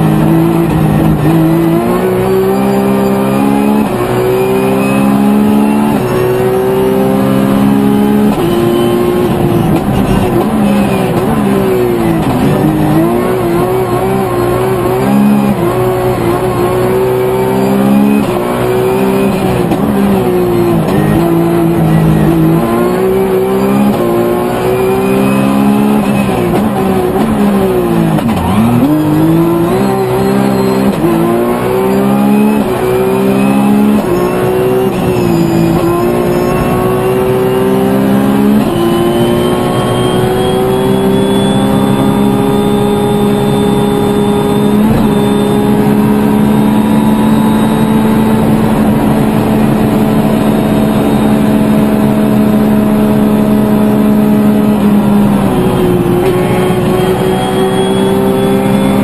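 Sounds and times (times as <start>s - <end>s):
rally car engine revving: 0.0s - 59.0s.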